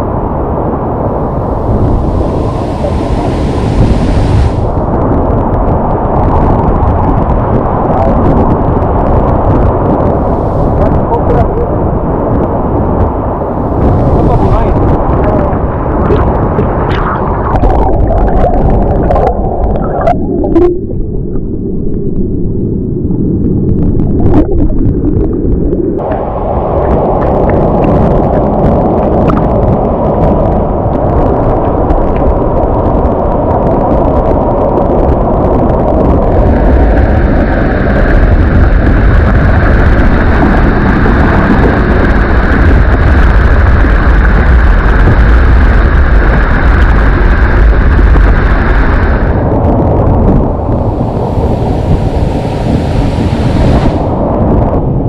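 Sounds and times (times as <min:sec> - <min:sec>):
waterfall roaring: 0:01.0 - 0:04.9, 0:10.1 - 0:12.1, 0:13.2 - 0:15.5, 0:50.4 - 0:54.3.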